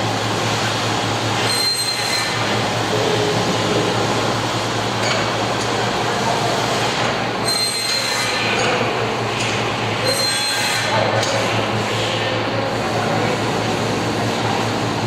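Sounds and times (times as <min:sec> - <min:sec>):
low machine hum: 0:02.4 - 0:07.5.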